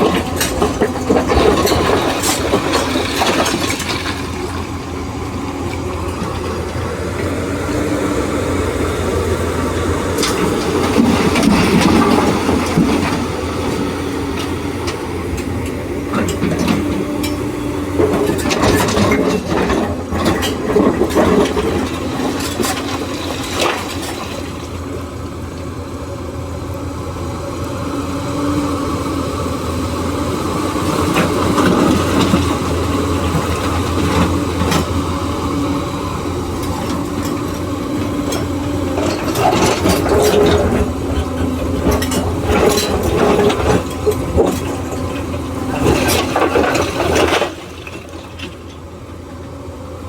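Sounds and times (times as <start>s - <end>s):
excavator diesel engine running: 0.0s - 50.0s
metal clanks and knocks: 36.6s - 48.7s.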